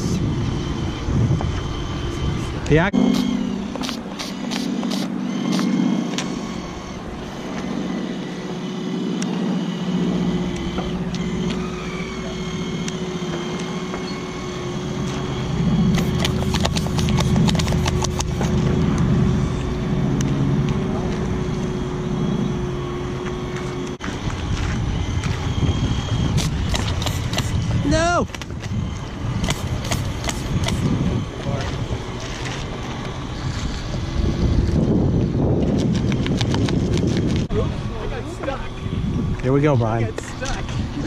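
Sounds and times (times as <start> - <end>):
steady hum: 0.0 - 41.0
model cannons firing rapid pops: 15.9 - 18.5, 26.3 - 27.6, 29.4 - 30.9.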